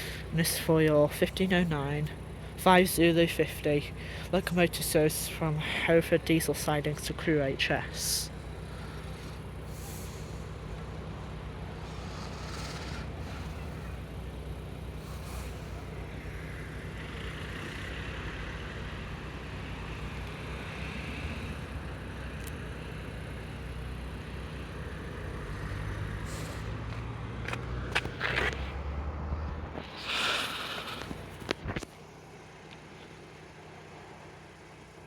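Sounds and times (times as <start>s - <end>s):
traffic noise: 0.0s - 35.0s
vehicle engine idling: 0.0s - 35.0s.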